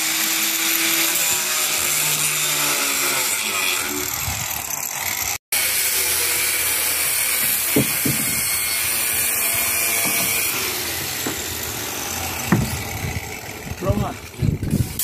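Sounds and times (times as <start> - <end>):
short knocks: 7.3 - 11.7, 12.4 - 13.2.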